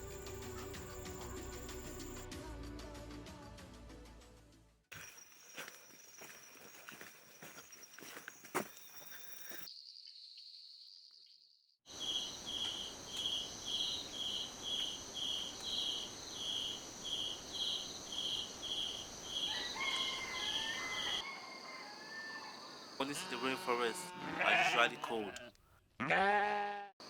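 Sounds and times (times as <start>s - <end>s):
insect high-pitched trill: 0.0s - 2.2s, 4.9s - 24.7s
rhythmic insect chirp: 0.0s - 2.2s, 4.9s - 23.9s.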